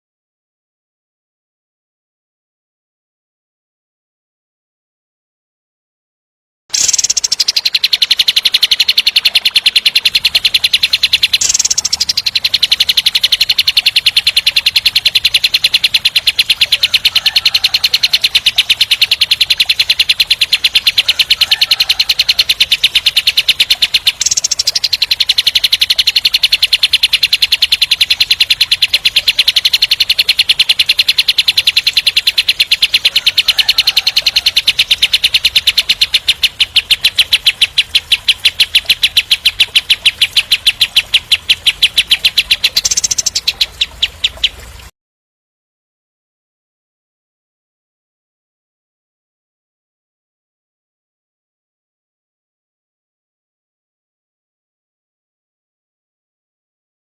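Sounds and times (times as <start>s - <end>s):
bird singing harsh repeated notes: 6.7s - 44.9s.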